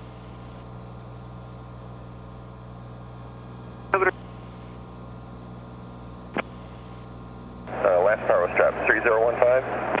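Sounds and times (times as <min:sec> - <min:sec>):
aircraft engine drone: 0:00.0 - 0:10.0
radio noise burst: 0:04.0 - 0:04.2.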